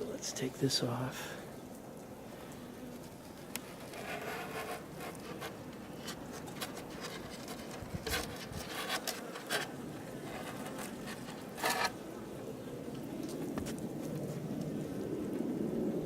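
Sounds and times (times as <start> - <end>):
scraping and rustling: 2.8 - 12.0.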